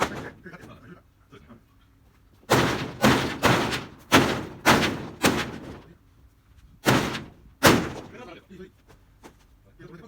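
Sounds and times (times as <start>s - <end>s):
tin roofing crashing and banging: 0.0s - 0.6s, 2.5s - 6.0s, 6.8s - 8.3s.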